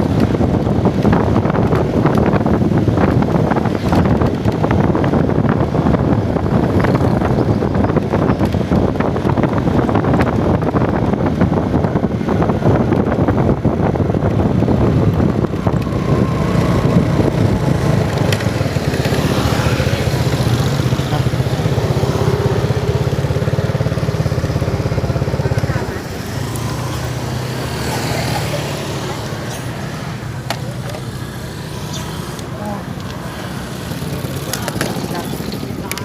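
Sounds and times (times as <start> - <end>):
rushing travel noise: 0.0 - 36.0
small engine running: 15.4 - 35.9.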